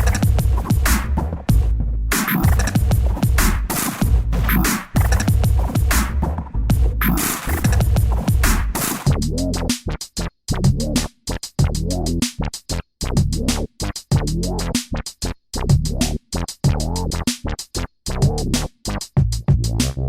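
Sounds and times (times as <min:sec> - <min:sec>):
stuttering electronic music: 0:02.2 - 0:03.4, 0:04.4 - 0:05.7, 0:07.0 - 0:09.0.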